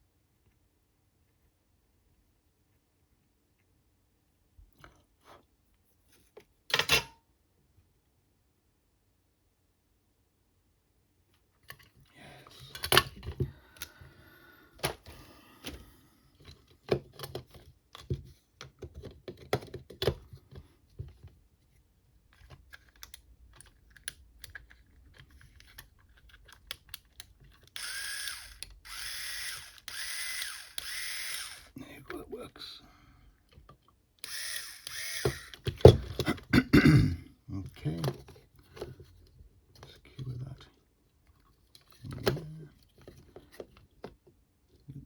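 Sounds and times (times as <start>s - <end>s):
screwdriver motor whirring: 27.6s - 31.8s, 34.2s - 35.9s.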